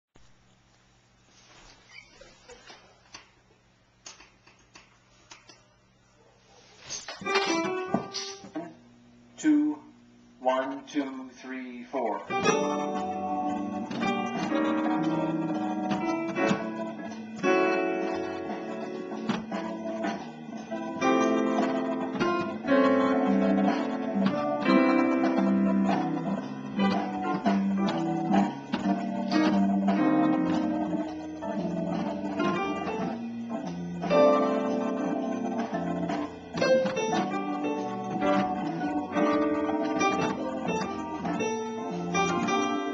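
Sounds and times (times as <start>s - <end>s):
backing track: 11.9s - 42.9s
solo jazz instrument: 12.3s - 42.9s.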